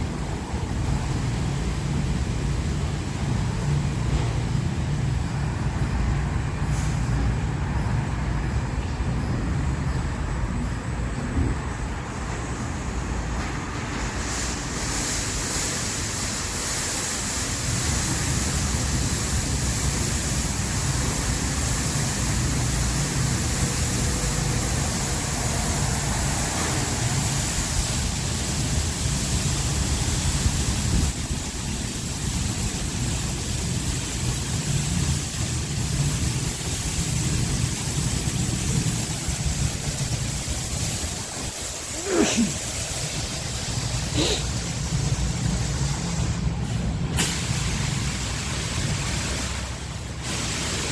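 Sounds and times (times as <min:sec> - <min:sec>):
spraying water: 0:00.0 - 0:10.2, 0:11.8 - 0:50.9
car wash machinery rumble: 0:00.0 - 0:50.9.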